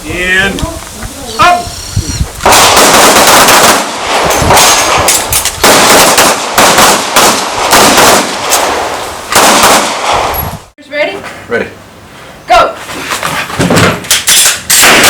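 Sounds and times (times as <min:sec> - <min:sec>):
pistol shots: 0:02.4 - 0:10.3, 0:14.3 - 0:15.0.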